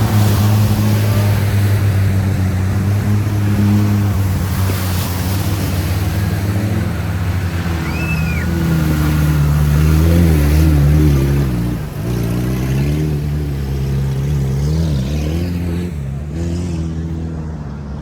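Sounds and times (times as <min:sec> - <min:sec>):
vehicle engine revving: 0:00.0 - 0:18.0
high whistle-like tone: 0:07.8 - 0:08.5.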